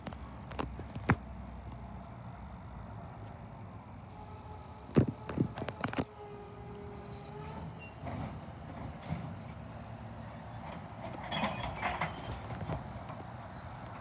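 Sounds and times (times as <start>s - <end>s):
garbage truck engine rumbling: 0.0s - 14.0s
metallic clattering and rattling: 11.1s - 13.0s.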